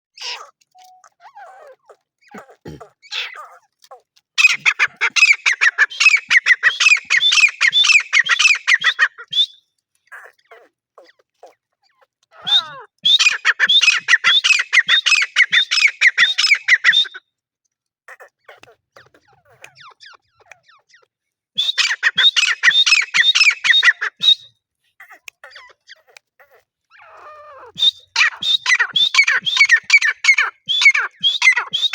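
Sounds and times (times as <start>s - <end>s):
francolin calling: 4.4s - 9.6s, 12.4s - 17.2s, 21.6s - 24.5s, 27.0s - 31.9s.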